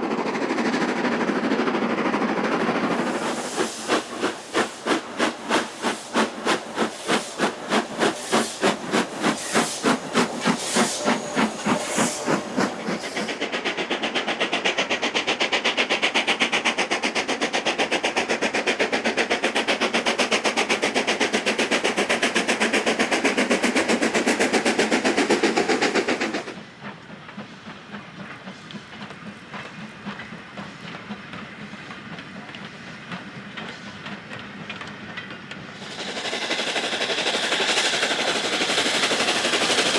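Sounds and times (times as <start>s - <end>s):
steam hiss: 0.0s - 39.9s
steam locomotive exhaust chatter: 0.0s - 39.9s
train rail clicks: 0.1s - 39.9s.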